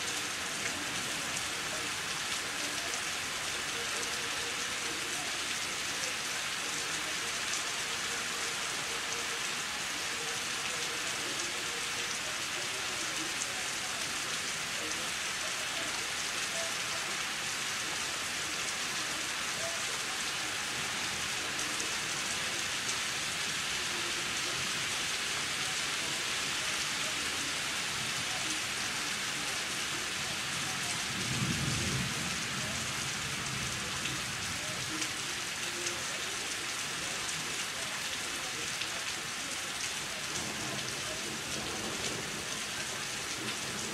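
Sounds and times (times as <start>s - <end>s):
steady rain hiss: 0.0s - 43.9s.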